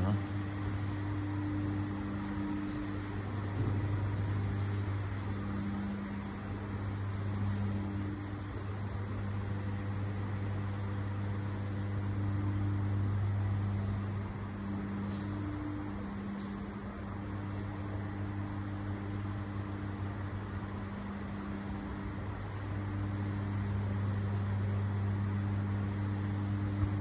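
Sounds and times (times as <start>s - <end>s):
higher hum: 0.0s - 27.0s
low pump hum: 0.0s - 27.0s
machine whir: 0.0s - 27.0s.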